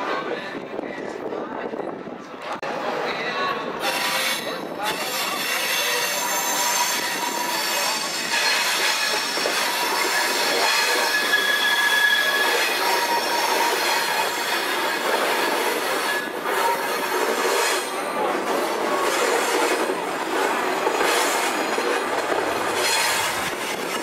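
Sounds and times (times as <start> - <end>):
train rumbling and clattering: 0.0 - 24.0
train wheels squealing: 3.9 - 18.0.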